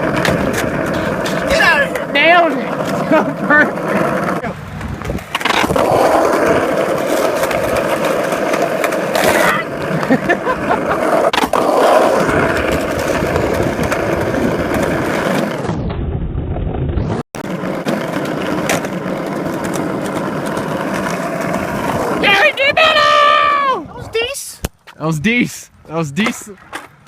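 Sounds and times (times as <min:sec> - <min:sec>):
skateboard clacks: 0:00.0 - 0:15.6, 0:17.4 - 0:22.6
skateboard wheels rolling on concrete: 0:00.0 - 0:27.0.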